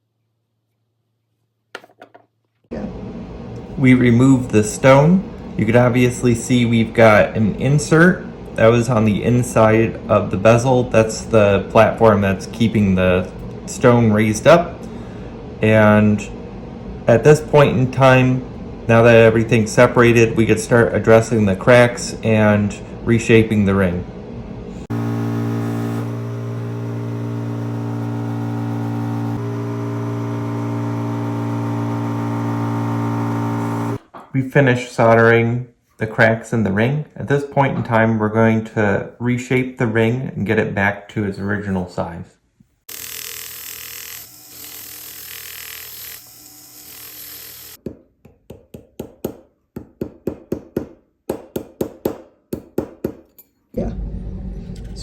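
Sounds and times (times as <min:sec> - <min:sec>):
steady machine hum: 0:02.7 - 0:34.0.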